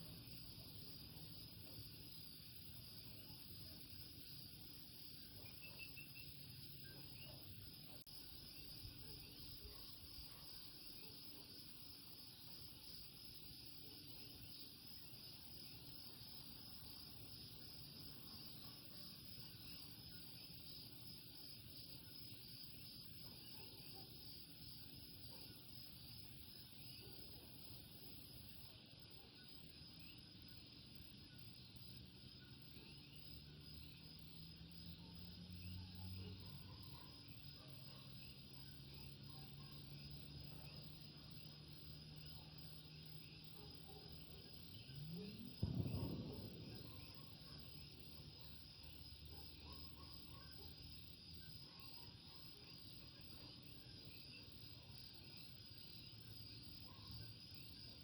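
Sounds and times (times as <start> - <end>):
insects trilling: 37.2 - 58.0.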